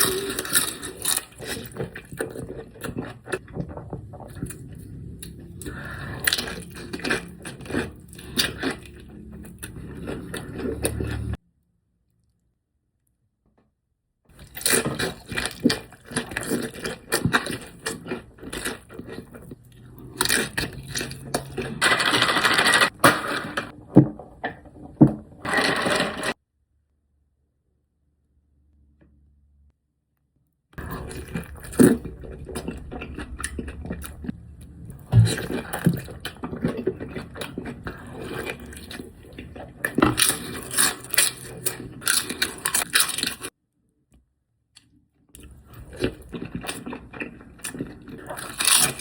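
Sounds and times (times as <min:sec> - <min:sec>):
eating crunching: 0:00.0 - 0:11.4, 0:14.3 - 0:22.4, 0:30.8 - 0:43.5, 0:45.4 - 0:49.0.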